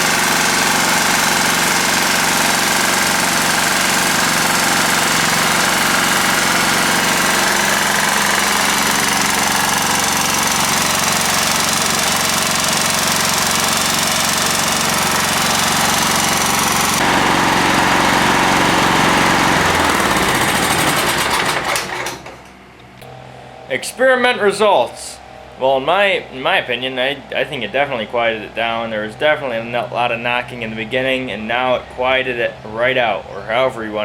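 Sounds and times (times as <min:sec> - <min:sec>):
lawn tractor engine running: 0:00.0 - 0:23.2.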